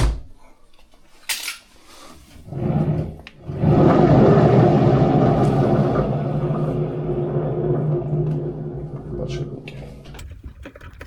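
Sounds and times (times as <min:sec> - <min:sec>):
motor hum: 0:02.4 - 0:10.3
washing machine drum rattling rumble: 0:02.4 - 0:10.4.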